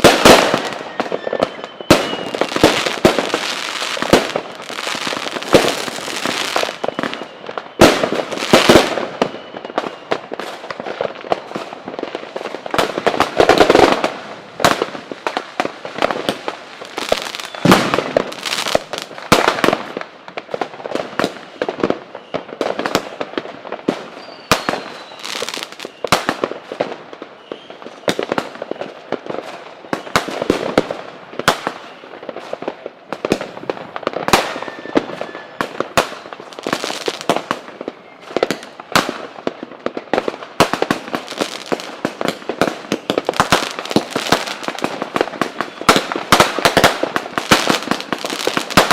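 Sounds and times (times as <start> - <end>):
firework whistles: 0.0 - 10.6, 16.9 - 18.9, 24.1 - 26.3, 27.4 - 29.0, 34.3 - 35.8, 45.4 - 48.9
fireworks bangs and crackling: 0.0 - 48.9.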